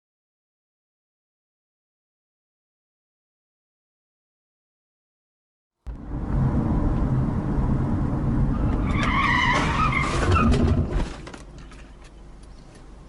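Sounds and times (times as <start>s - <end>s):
car road and engine rumble: 5.9s - 13.0s
tyres squealing in a skid: 8.4s - 11.2s.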